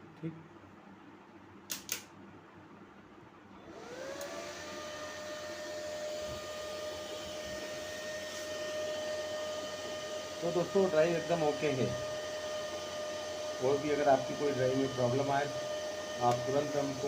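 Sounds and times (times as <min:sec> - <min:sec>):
electric motor whining: 0:03.7 - 0:17.0
click: 0:04.2 - 0:04.4.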